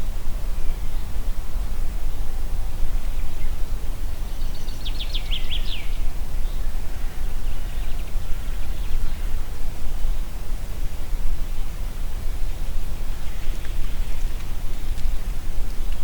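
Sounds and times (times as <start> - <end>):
wind through trees: 0.0 - 16.0
songbird singing: 4.3 - 9.3.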